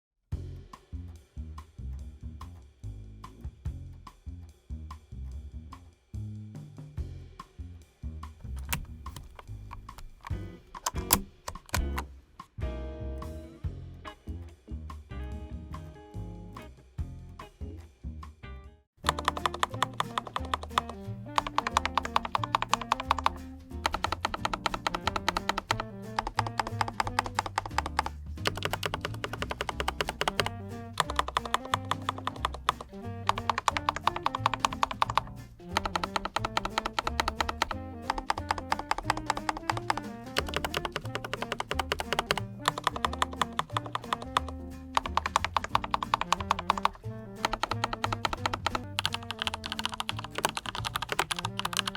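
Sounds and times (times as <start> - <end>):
background music with bass line: 0.3 - 51.9
mechanical keyboard typing: 19.0 - 51.9.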